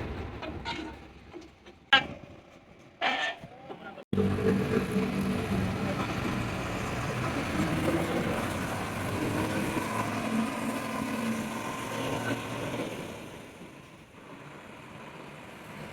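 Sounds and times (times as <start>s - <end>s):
truck engine rumbling: 3.8s - 15.9s.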